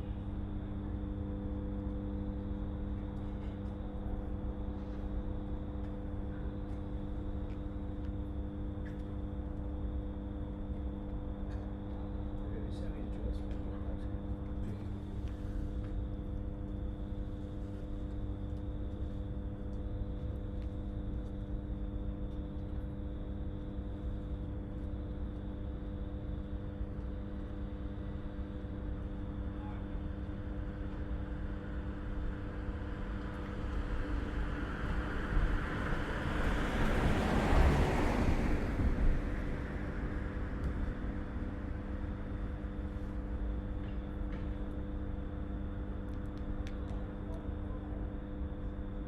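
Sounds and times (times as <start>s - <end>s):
low machine hum: 0.0s - 49.0s
passing vehicle: 33.6s - 42.1s.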